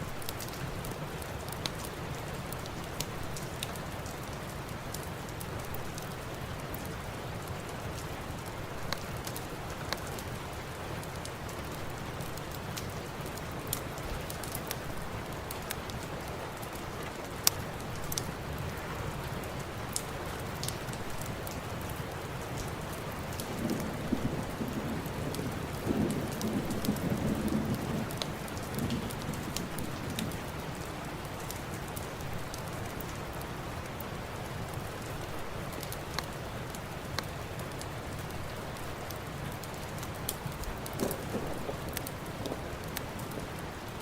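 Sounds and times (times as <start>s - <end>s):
steady rain: 0.0s - 44.0s
thunder rumble: 23.3s - 30.8s, 40.5s - 44.0s
sharp clicks and pops: 40.9s - 43.6s.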